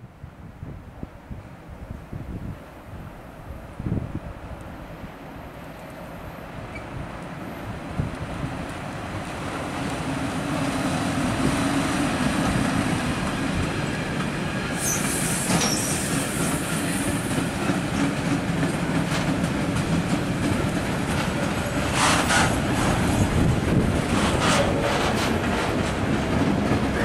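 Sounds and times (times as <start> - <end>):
freight train wheels rumbling: 4.4 - 27.0
wheel squeal: 14.8 - 16.6.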